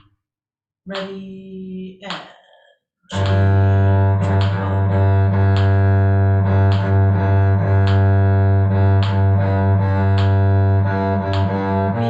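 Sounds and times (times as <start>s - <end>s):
cello bowing low note: 3.1s - 12.0s.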